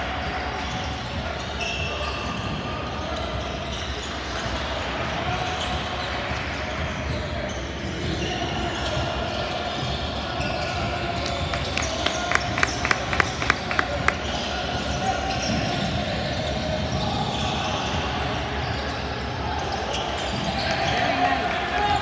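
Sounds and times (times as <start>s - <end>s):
voices echoing in a hall: 11.2s - 14.4s, 20.1s - 22.0s
basketball bouncing: 11.3s - 14.2s.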